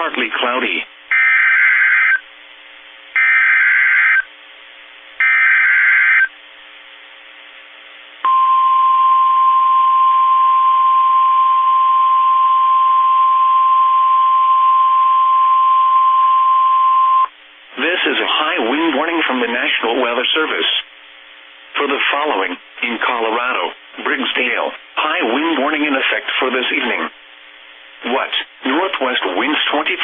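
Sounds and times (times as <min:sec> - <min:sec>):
steady warning alarm tone: 0:01.1 - 0:02.2, 0:03.2 - 0:04.3, 0:05.2 - 0:06.3, 0:08.3 - 0:17.3
buzzy digital data bursts: 0:03.2 - 0:04.3, 0:05.2 - 0:06.3.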